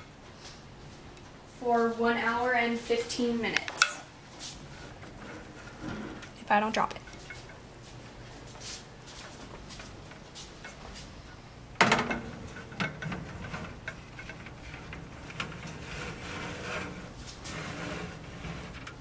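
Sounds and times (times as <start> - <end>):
baking pans clattering and scraping: 11.8 - 19.0.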